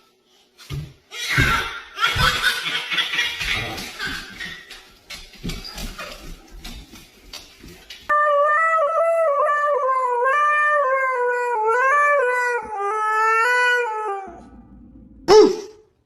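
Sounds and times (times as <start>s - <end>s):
dog howling: 8.1s - 15.0s.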